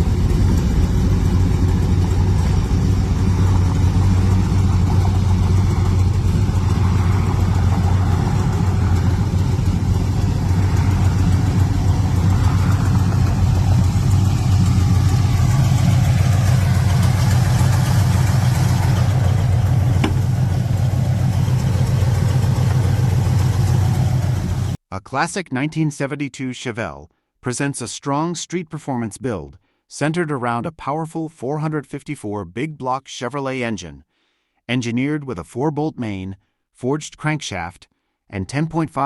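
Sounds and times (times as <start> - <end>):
car engine idling: 0.0 - 24.8.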